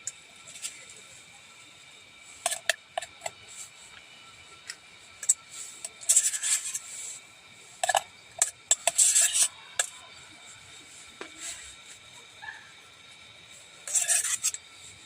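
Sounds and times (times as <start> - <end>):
cookware scraping and rubbing: 2.3 - 3.8, 5.2 - 7.2, 7.8 - 10.1, 11.0 - 11.9, 13.8 - 14.7.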